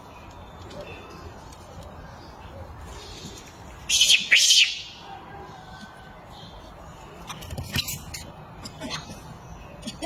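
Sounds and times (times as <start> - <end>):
shrill animal calls: 3.9 - 5.0.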